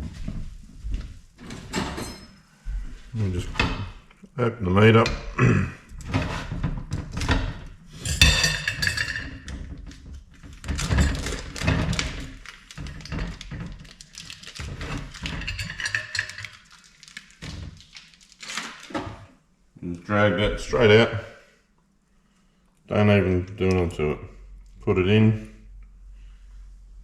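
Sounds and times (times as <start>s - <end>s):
plastic packaging crinkling: 10.8s - 15.4s, 16.2s - 19.0s.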